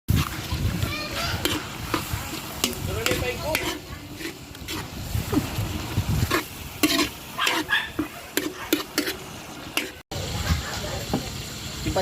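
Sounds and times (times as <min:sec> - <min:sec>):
noodles sizzling in a pan: 0:00.1 - 0:12.0
utensil scraping and knocking pan: 0:01.1 - 0:05.6, 0:06.2 - 0:10.0.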